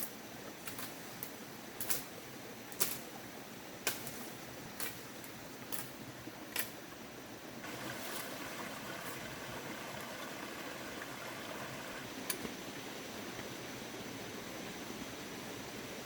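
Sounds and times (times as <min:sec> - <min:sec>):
sickle snapping rice stalks: 0:00.6 - 0:02.1, 0:02.7 - 0:03.1, 0:03.8 - 0:05.0.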